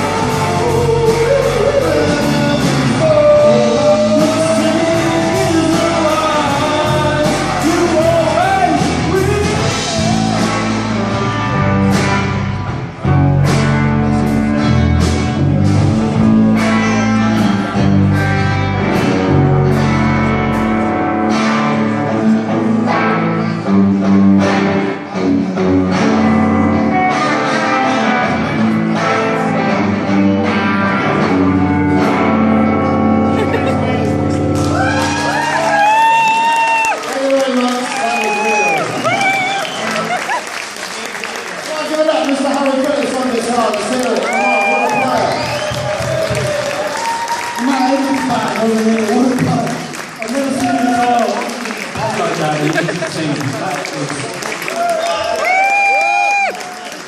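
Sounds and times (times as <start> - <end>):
person singing: 0.0 - 10.6
strummed guitar: 0.0 - 35.5.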